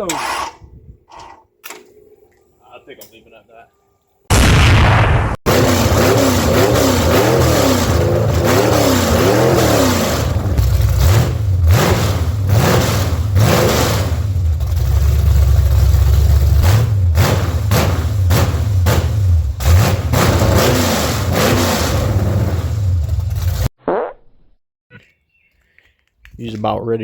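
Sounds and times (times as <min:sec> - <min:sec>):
engine revving and idling: 0:05.5 - 0:23.7.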